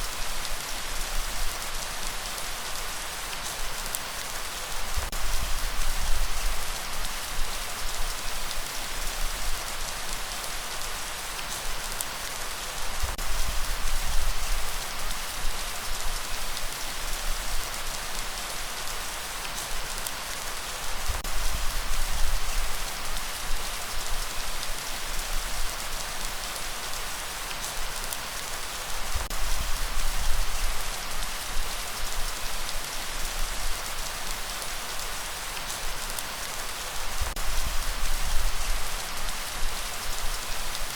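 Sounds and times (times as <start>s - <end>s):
heavy rain hiss: 0.0s - 40.9s.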